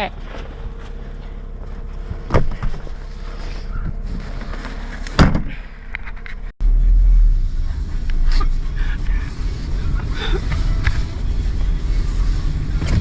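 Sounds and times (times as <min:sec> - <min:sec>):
low running hum: 0:00.0 - 0:13.0
loud steady low rumble: 0:06.4 - 0:13.0.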